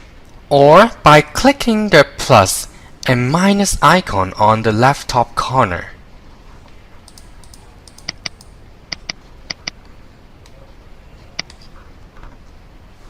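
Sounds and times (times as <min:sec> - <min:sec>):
faint steady hiss: 0:00.0 - 0:13.0
computer mouse clicking: 0:07.0 - 0:09.8, 0:11.4 - 0:12.3.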